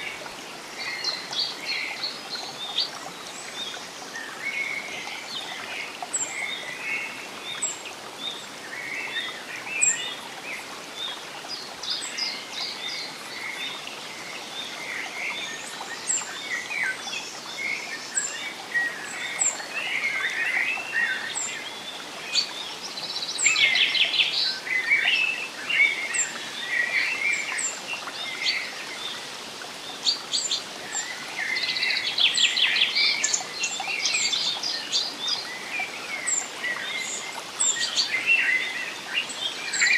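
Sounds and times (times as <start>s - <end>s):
birds singing in forest: 0.0s - 39.9s.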